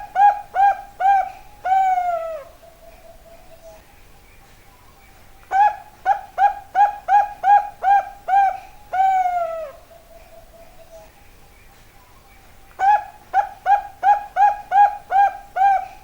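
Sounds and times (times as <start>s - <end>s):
dove cooing: 0.0s - 3.8s, 5.5s - 11.1s, 12.8s - 16.0s.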